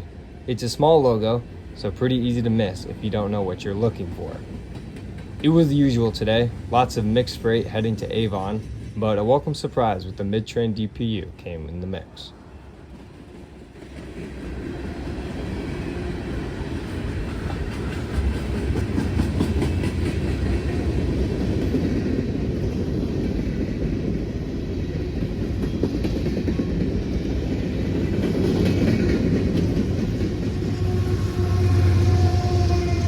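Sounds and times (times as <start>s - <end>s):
low train rumble: 0.0s - 33.0s
train wheels clattering over rail joints: 3.0s - 9.7s, 16.8s - 31.0s.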